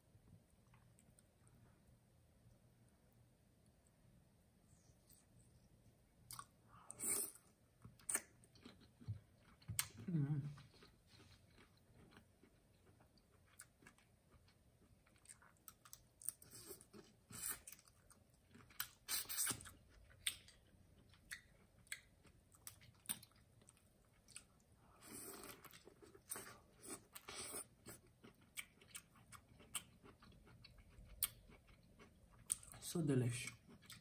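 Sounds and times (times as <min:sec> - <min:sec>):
person chewing food: 0:00.5 - 0:01.9, 0:04.7 - 0:32.8, 0:33.5 - 0:34.0.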